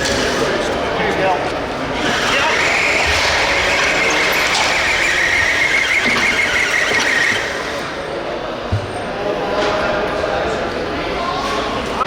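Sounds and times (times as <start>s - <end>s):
rc truck high-pitched squeal: 2.0s - 8.2s.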